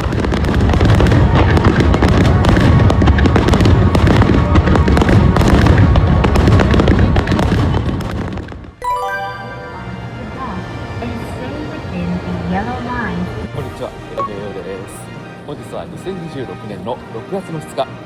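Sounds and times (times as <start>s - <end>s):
fireworks bangs and crackles: 0.0s - 8.8s.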